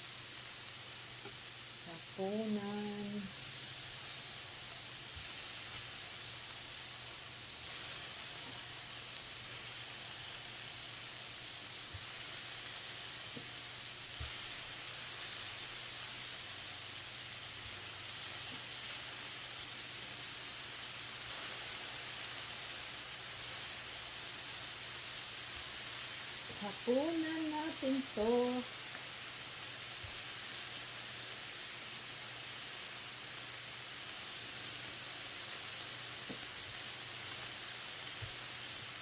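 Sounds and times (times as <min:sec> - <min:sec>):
meat sizzling on a grill: 0:00.0 - 0:39.0.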